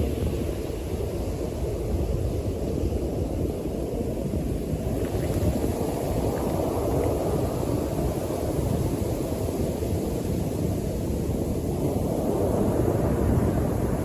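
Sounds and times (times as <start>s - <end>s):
wind rumbling on microphone: 0.0s - 14.0s
surf washing onto beach: 4.4s - 14.0s.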